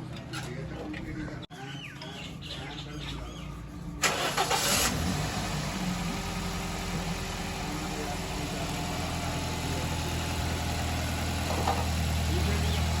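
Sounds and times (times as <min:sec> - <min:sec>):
car engine idling: 0:04.0 - 0:13.0.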